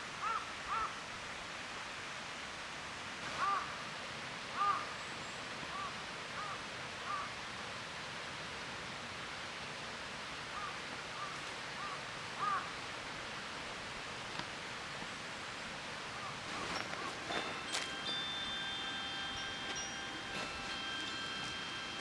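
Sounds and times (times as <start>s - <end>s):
steady outdoor hiss: 0.0s - 22.0s
crow cawing: 0.2s - 0.9s, 3.4s - 3.7s, 4.6s - 4.9s, 5.7s - 7.3s, 10.6s - 12.7s.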